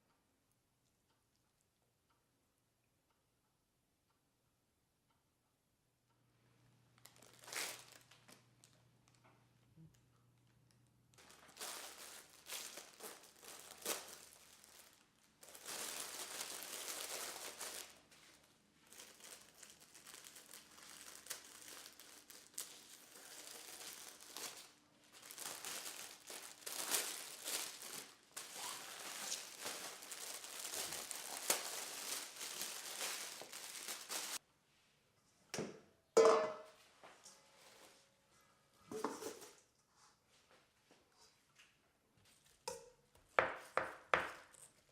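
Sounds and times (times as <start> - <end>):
leafy greens crinkling: 7.0 - 9.2, 11.1 - 34.4.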